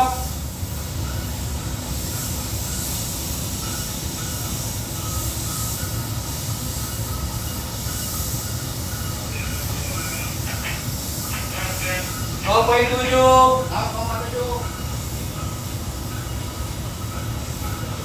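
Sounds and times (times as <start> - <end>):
steady hiss: 0.0 - 18.0
ship diesel engine rumbling: 8.4 - 18.0.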